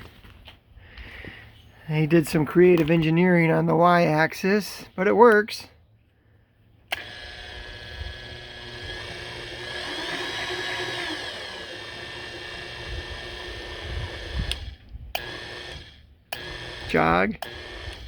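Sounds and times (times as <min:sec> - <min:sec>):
milling machine feed motor whine: 0:06.9 - 0:18.0.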